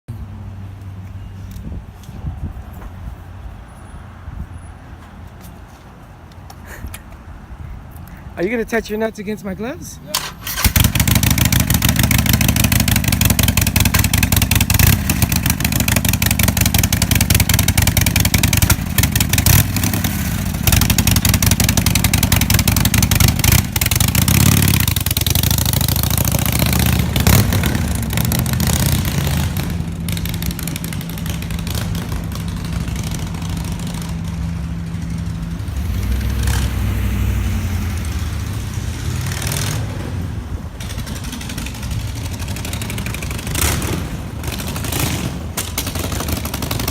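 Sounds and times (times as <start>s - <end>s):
motorcycle engine revving: 10.2s - 46.9s.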